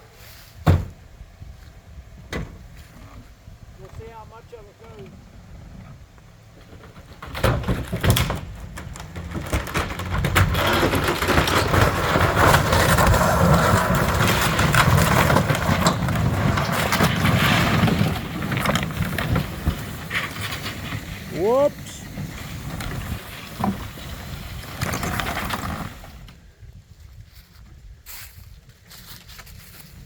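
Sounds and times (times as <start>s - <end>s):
vehicle engine rumble: 0.0s - 30.0s
wood cracking and splintering: 6.6s - 26.4s.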